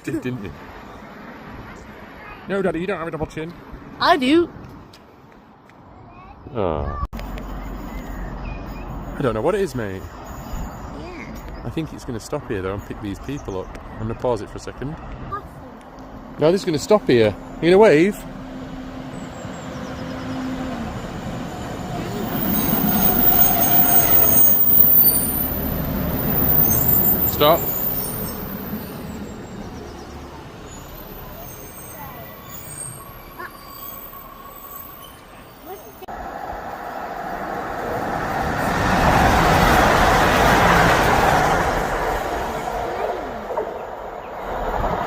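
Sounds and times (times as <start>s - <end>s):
train rumbling: 7.2s - 45.0s
train brakes squealing: 9.8s - 11.4s, 19.0s - 36.0s.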